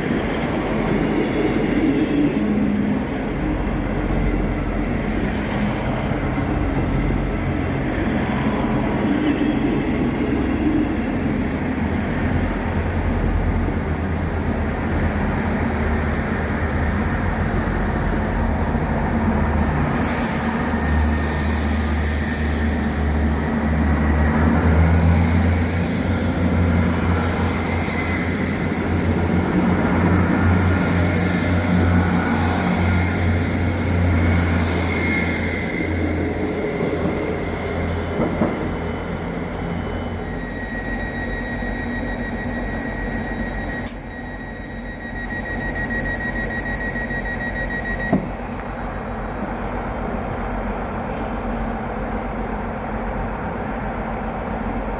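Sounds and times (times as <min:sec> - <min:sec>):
train wheels rumbling on rail: 0:00.0 - 0:54.9
high thin squeal: 0:20.0 - 0:23.9, 0:25.2 - 0:29.2, 0:30.8 - 0:47.9
steady high tone: 0:25.0 - 0:49.0.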